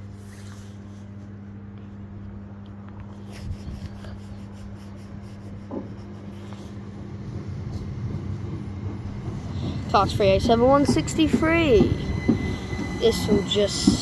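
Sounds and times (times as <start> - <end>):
electric train approaching: 6.3 - 14.0.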